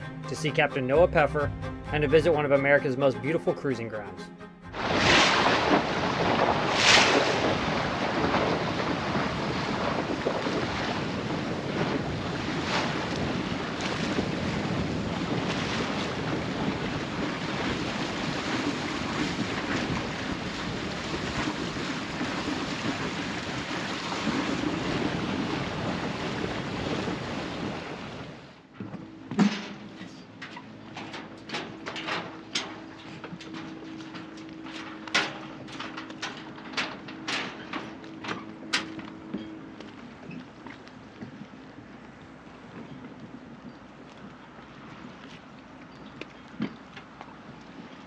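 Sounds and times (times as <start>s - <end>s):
water rushing along hull: 4.7s - 48.0s
wind buffeting microphone: 4.8s - 28.2s
water splashes: 4.8s - 28.4s.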